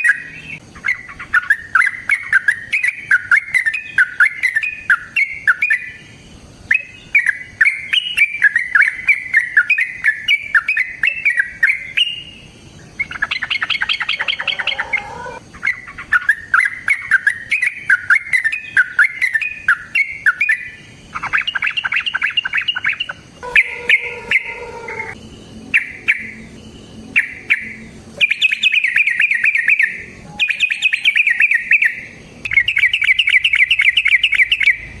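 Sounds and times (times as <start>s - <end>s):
bird chattering calls: 0.0s - 6.1s, 6.7s - 26.6s, 27.2s - 35.0s
bird squawks: 6.7s - 12.4s, 13.0s - 26.5s, 27.2s - 35.0s.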